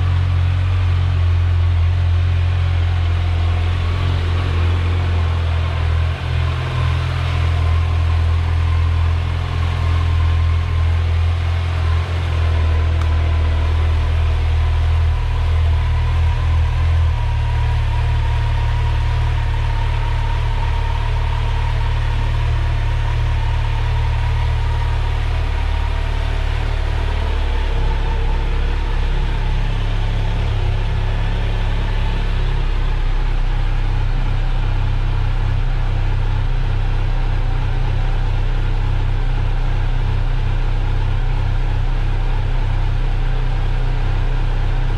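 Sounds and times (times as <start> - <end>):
motorcycle engine idling: 0.0 - 44.9.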